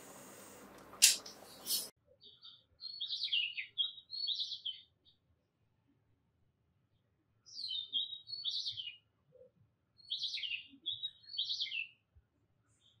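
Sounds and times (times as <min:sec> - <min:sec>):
bird chirping and trilling: 0:01.0 - 0:04.9, 0:10.0 - 0:12.0.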